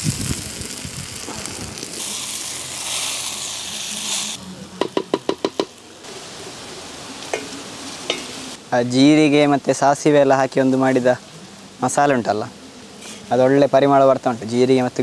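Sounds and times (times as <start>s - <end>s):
food sizzling in hot oil: 0.0s - 8.6s.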